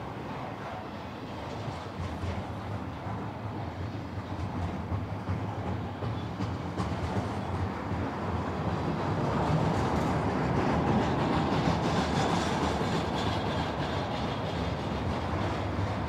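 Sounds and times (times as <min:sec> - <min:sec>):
freight train wheels rumbling on track: 0:00.0 - 0:16.0
faint rail clicks: 0:01.4 - 0:16.0.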